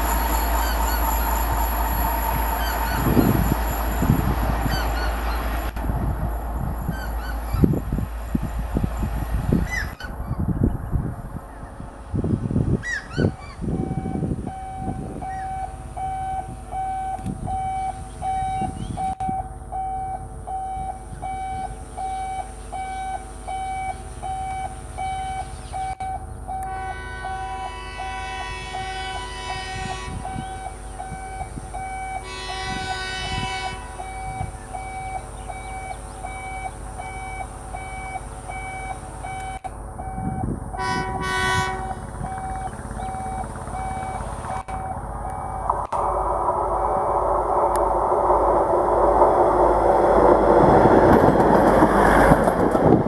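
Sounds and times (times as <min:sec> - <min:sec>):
rhythmic beeping: 0:00.0 - 0:09.6, 0:42.0 - 0:52.9
low running rumble: 0:00.0 - 0:22.8, 0:26.2 - 0:53.0
train horn blasts: 0:26.6 - 0:34.5, 0:40.8 - 0:43.1.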